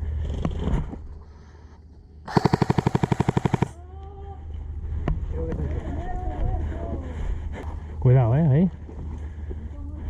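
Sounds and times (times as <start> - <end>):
airsoft gun full-auto burst: 2.3 - 3.8.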